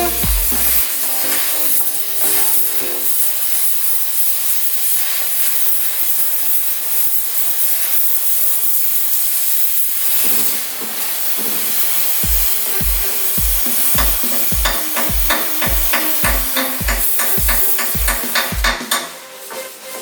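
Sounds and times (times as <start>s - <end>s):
background music with thumping beat: 0.0s - 0.9s, 12.2s - 19.7s
harsh hissing rasping noise: 0.0s - 20.0s.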